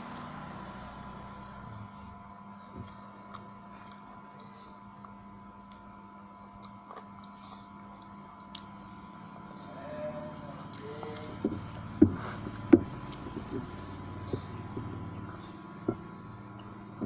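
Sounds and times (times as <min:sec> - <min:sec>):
steady low hum: 0:00.0 - 0:17.0
chewing clicks and smacks: 0:02.8 - 0:09.2.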